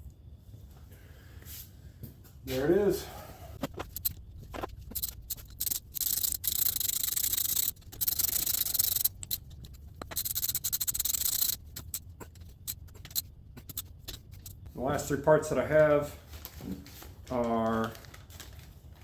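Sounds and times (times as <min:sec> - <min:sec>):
metal parts clicking and tapping: 0:03.6 - 0:14.7.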